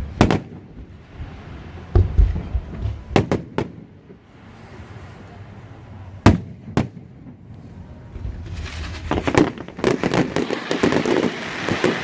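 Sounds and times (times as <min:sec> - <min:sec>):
fireworks bangs: 0:00.0 - 0:04.2, 0:06.2 - 0:07.5, 0:08.1 - 0:12.0.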